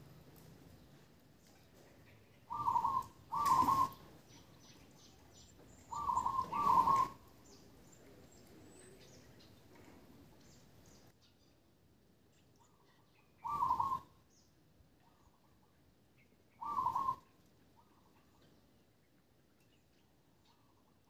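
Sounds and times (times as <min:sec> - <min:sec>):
bird calling clear notes: 0:02.4 - 0:09.6, 0:12.6 - 0:15.6, 0:16.2 - 0:18.4.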